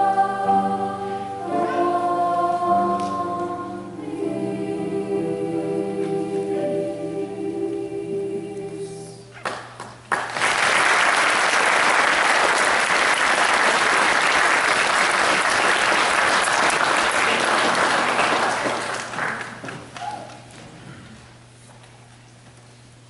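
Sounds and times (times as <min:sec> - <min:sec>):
choir holding chord: 0:00.0 - 0:09.3
audience applause: 0:09.5 - 0:20.1.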